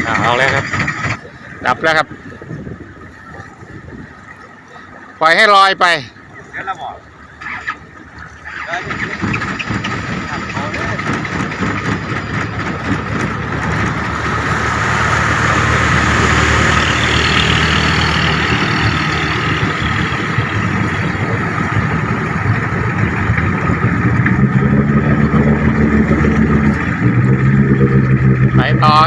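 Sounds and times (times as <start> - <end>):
low engine hum: 0.0 - 29.0.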